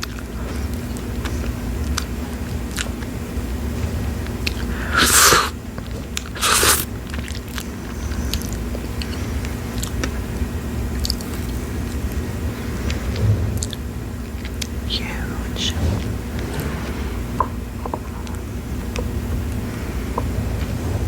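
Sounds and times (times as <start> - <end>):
chewing wet clicks: 0.0 - 3.2, 4.2 - 12.2
juicy bite slurp: 4.4 - 5.5, 6.2 - 6.9.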